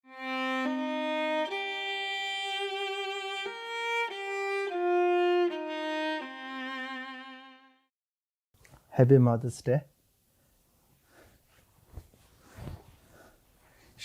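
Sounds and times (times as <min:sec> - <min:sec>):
slow violin melody: 0:00.0 - 0:07.9.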